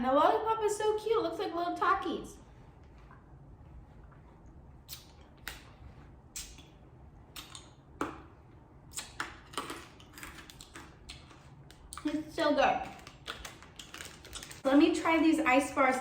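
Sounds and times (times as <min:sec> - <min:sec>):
crunching hard candy: 0:08.9 - 0:12.1, 0:12.8 - 0:14.6.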